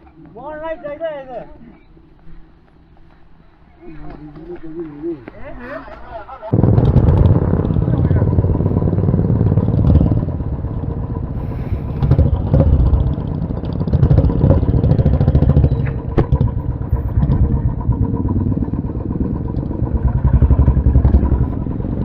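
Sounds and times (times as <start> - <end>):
motorcycle engine running: 6.5 - 22.0.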